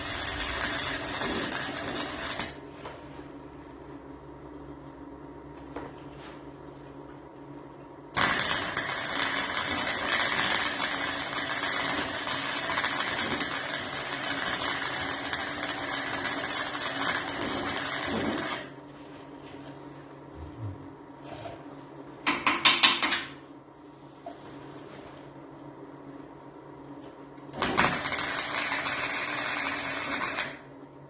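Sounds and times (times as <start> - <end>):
welding arc crackling: 0.0 - 2.6, 8.2 - 18.8, 27.6 - 30.7.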